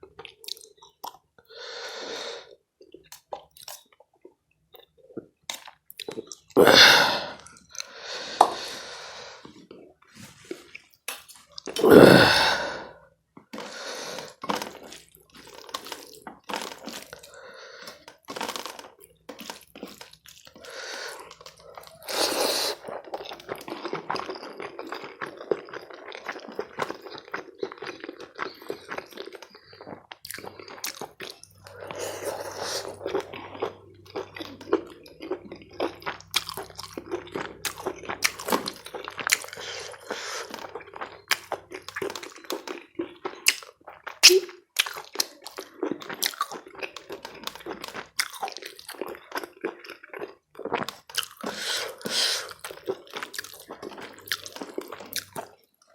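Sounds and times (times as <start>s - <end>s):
person chewing food: 0.0s - 55.9s
wet smacking and crunching: 13.4s - 17.2s, 17.9s - 20.6s.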